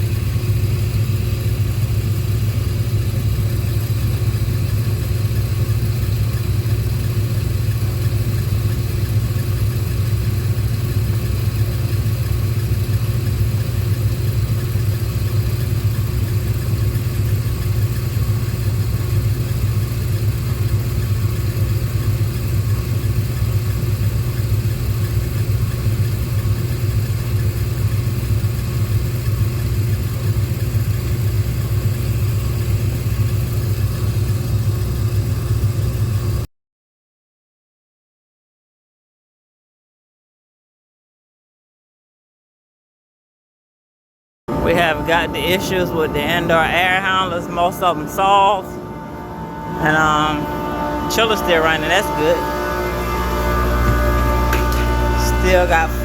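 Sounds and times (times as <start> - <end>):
chiller low drone: 0.0 - 36.5, 44.5 - 56.0
faint steady hum: 44.5 - 56.0.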